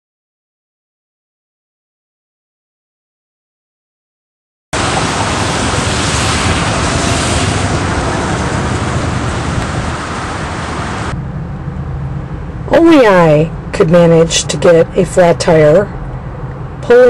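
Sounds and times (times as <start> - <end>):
heavy rain hissing: 4.8 - 11.2
low rumble: 4.8 - 14.3.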